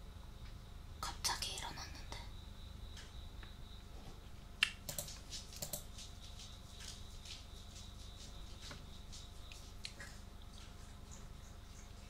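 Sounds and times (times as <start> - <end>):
keyboard keys clicking: 4.9 - 5.9.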